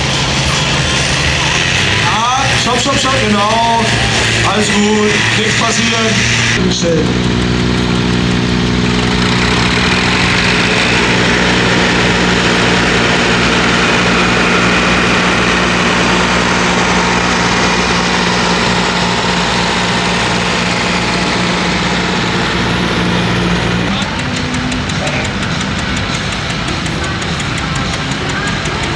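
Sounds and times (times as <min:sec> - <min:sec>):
tractor engine idling: 0:06.7 - 0:23.9.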